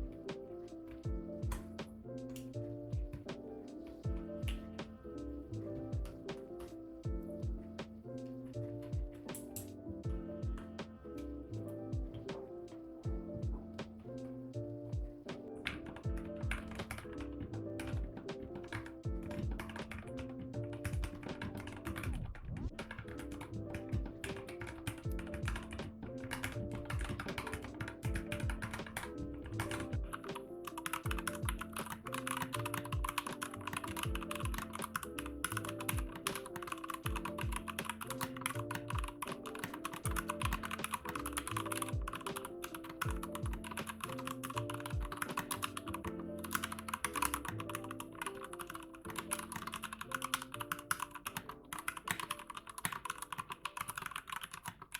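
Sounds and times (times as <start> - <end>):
background music: 0.0 - 54.9
mechanical keyboard typing: 15.4 - 54.9.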